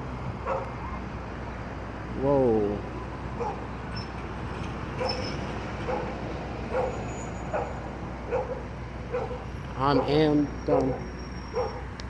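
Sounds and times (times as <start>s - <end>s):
vehicle engine rumble: 0.0s - 12.0s
dog barking: 0.4s - 1.0s, 3.4s - 3.6s, 5.0s - 5.2s, 5.9s - 6.1s, 6.7s - 9.4s, 10.9s - 11.8s.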